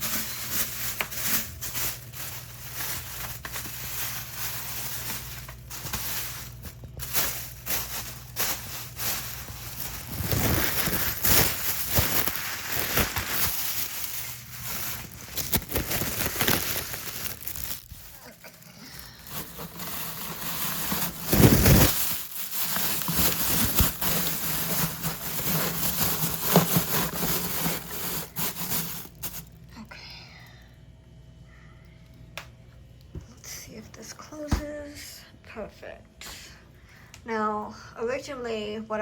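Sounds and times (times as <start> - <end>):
rustling and crinkling: 0.0 - 29.7.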